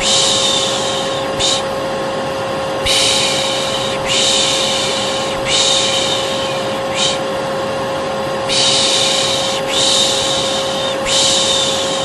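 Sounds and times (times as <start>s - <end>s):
person shushing: 0.0s - 1.7s, 2.8s - 7.3s, 8.4s - 12.0s
hair dryer humming: 0.0s - 12.0s.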